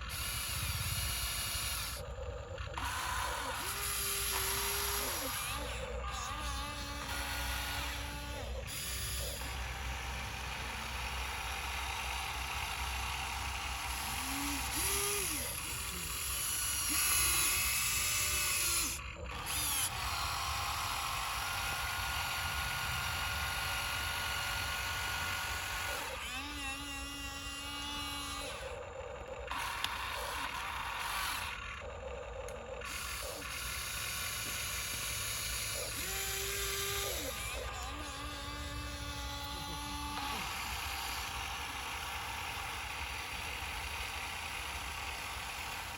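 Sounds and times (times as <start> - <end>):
electric motor whirring and whining: 0.0 - 45.9.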